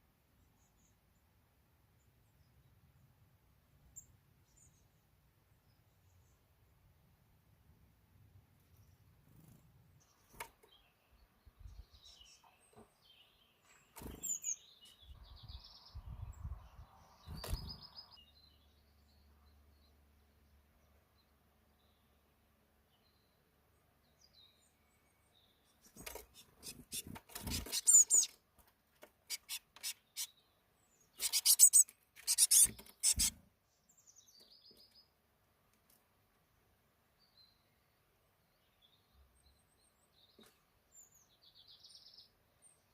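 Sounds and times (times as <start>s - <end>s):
small birds chirping: 0.0s - 7.0s, 8.2s - 42.9s
loud scratchy rasping: 31.2s - 33.3s.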